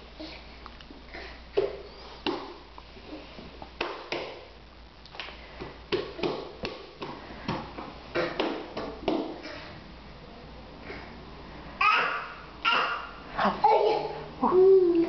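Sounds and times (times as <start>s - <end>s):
taps and knocks on hard surfaces: 5.6s - 9.4s.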